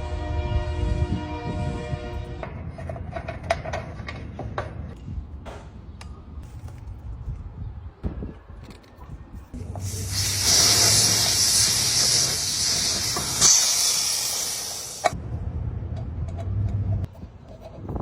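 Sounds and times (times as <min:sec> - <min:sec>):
pressurised jet hissing: 0:09.7 - 0:15.2.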